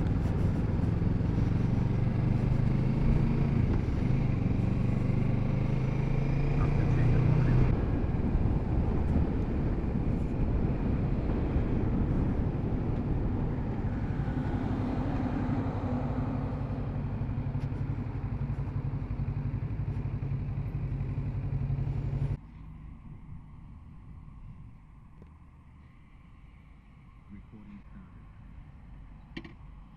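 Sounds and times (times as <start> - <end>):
motorcycle engine running: 0.0 - 22.4.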